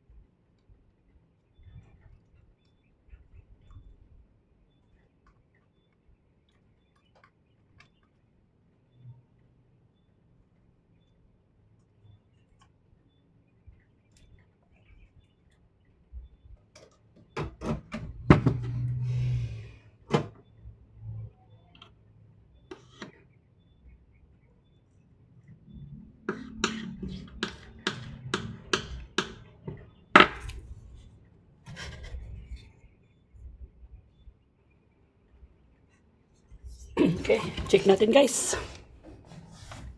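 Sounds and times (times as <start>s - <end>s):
hard parts clicking and knocking: 26.3s - 30.7s
parts rubbing and scraping: 26.3s - 32.7s, 36.7s - 39.9s.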